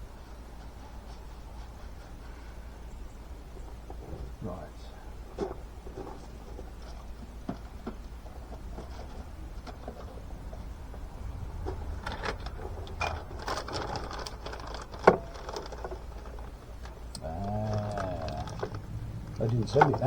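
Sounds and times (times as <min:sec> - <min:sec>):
parts and tools clicking: 0:11.6 - 0:20.0.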